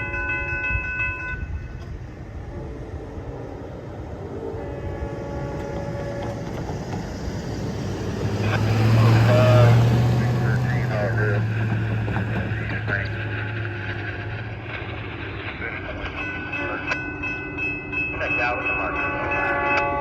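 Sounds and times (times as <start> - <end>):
train rumble: 0.0 - 20.0
locomotive air horn: 4.2 - 6.6, 19.0 - 20.0.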